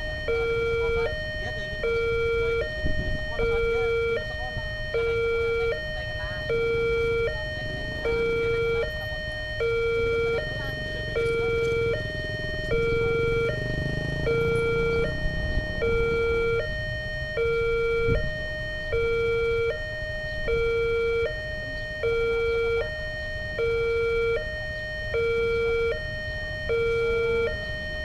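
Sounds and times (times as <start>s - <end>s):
two-tone electronic warning siren: 0.0s - 28.0s
low rumble: 7.0s - 19.0s.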